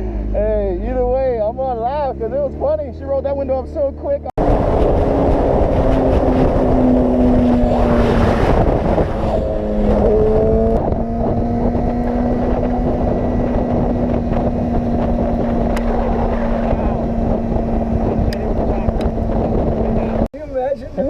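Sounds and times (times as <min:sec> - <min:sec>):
motorcycle engine running: 0:00.0 - 0:20.3
wind rush on microphone: 0:04.4 - 0:21.0.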